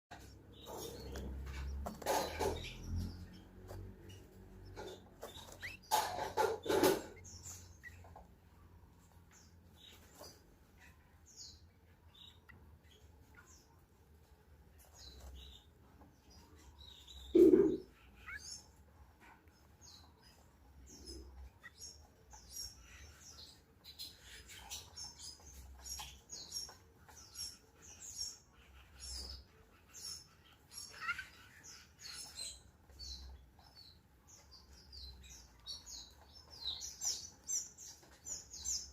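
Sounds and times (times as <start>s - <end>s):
canaries chirping: 0.1s - 38.9s.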